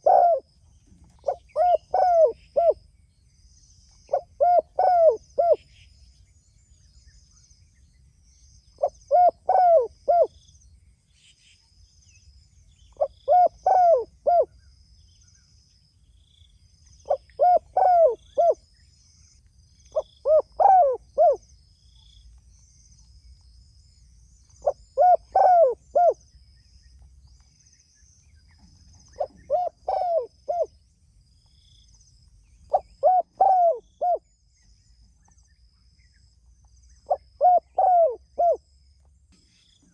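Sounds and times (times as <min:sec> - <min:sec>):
dove cooing: 0:00.0 - 0:00.5, 0:01.2 - 0:02.8, 0:04.1 - 0:05.6, 0:08.8 - 0:10.3, 0:13.0 - 0:14.6, 0:17.1 - 0:18.6, 0:20.2 - 0:21.4, 0:24.6 - 0:26.2, 0:29.2 - 0:30.7, 0:32.7 - 0:34.2, 0:37.1 - 0:38.6.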